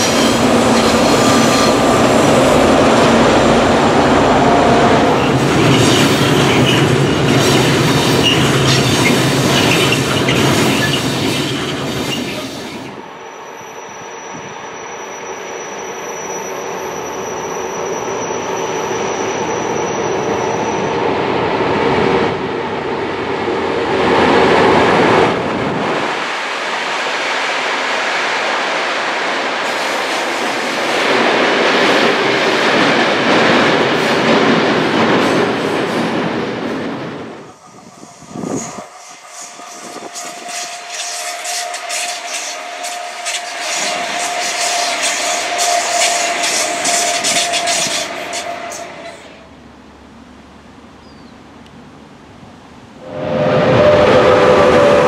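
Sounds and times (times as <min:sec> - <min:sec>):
train wheel clatter on rails: 0:05.2 - 0:12.9, 0:26.4 - 0:49.3.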